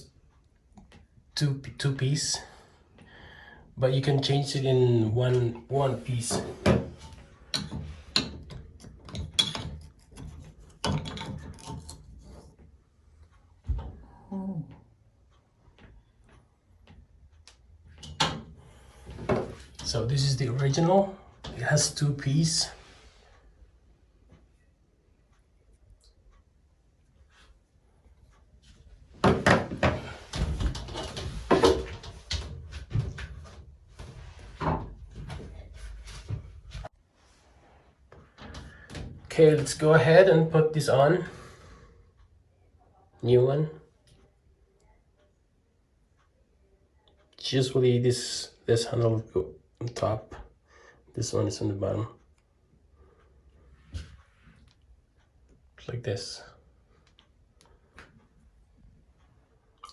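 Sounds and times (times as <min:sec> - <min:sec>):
faucet parts knocking and clicking: 0:06.6 - 0:12.1.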